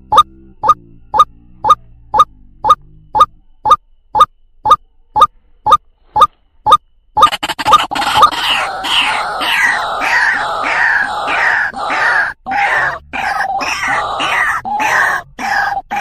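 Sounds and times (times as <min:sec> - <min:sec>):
waterhen calling harsh notes: 0:07.8 - 0:16.0.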